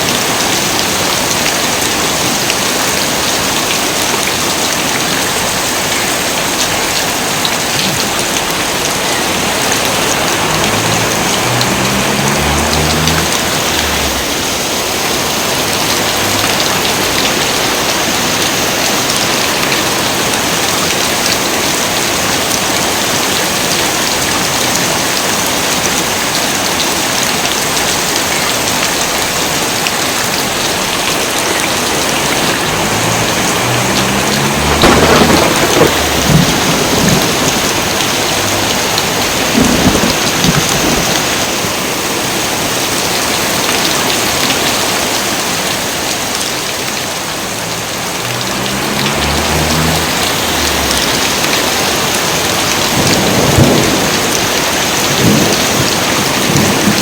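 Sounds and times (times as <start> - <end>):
heavy rain pouring: 0.0 - 57.0
thunder crack and rumble: 32.1 - 41.5, 47.8 - 57.0.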